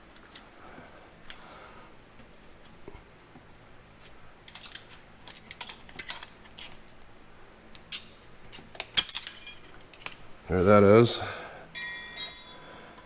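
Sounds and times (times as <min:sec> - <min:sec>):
metallic clicks of tools handled: 0:04.5 - 0:06.9, 0:08.7 - 0:10.2.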